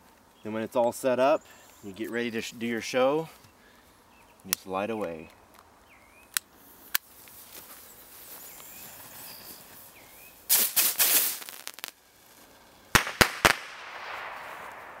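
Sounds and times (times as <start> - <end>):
faint hiss: 0.0 - 15.0
bottle rockets crackling burst: 10.5 - 12.0, 12.9 - 15.0
sharp bangs: 13.0 - 15.0.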